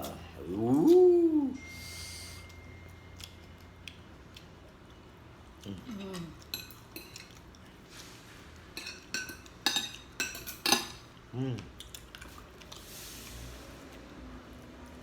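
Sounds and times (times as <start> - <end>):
cutlery clinking against a plate: 5.9 - 7.5, 8.7 - 11.1.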